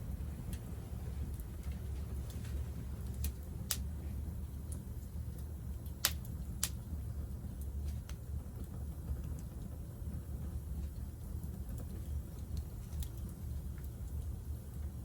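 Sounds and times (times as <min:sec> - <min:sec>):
campfire crackling and popping: 0:03.0 - 0:03.9, 0:04.7 - 0:06.9, 0:11.5 - 0:14.4.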